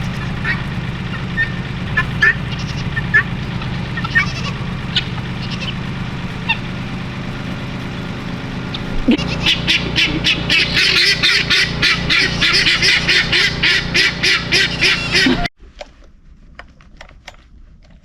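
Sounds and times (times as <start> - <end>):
bird giving harsh rapid calls: 0.0 - 5.8, 6.4 - 6.8, 8.7 - 15.5
steady low hum: 0.0 - 15.5.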